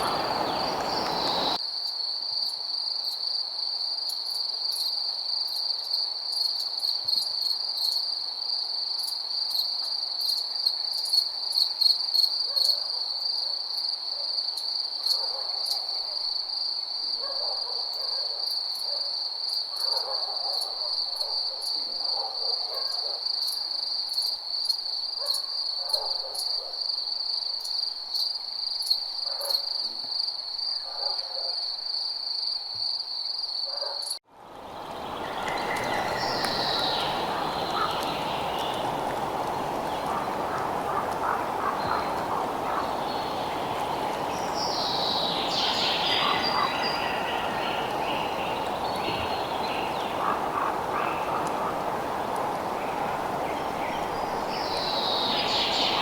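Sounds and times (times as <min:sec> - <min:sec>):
crickets chirping: 0:00.0 - 0:56.0
night animal calls: 0:35.4 - 0:38.7, 0:40.0 - 0:43.3, 0:45.5 - 0:47.6, 0:49.3 - 0:52.1.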